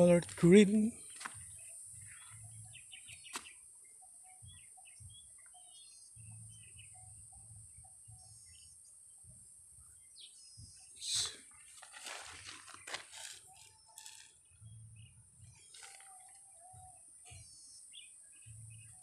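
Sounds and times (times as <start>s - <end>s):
faint birds chirping: 0.0s - 19.0s.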